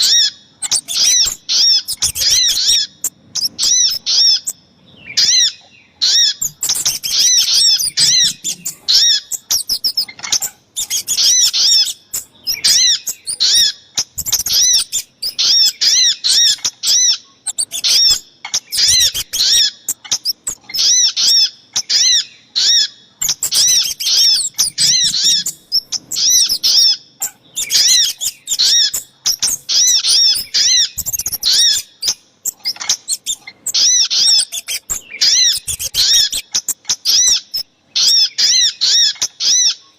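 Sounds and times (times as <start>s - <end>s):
small forest birds calling: 0.0s - 39.9s.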